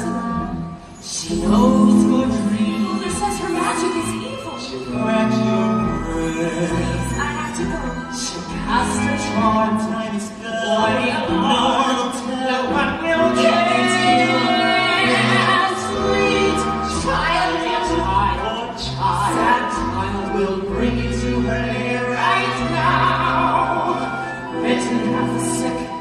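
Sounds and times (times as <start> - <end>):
ensemble voices singing: 0.0 - 26.0
orchestral accompaniment: 0.0 - 26.0
singing voices: 0.0 - 26.0.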